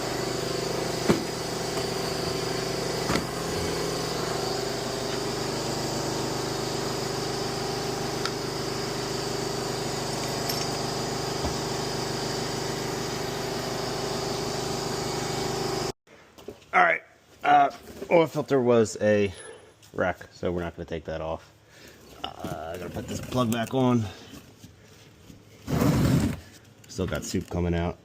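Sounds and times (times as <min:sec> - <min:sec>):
motor running steadily: 0:00.0 - 0:16.0.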